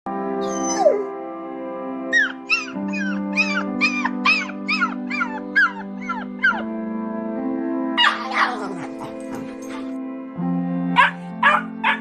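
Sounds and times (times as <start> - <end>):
background music: 0.1 - 12.0
puppy crying: 0.4 - 1.1, 2.1 - 6.6, 8.0 - 9.9.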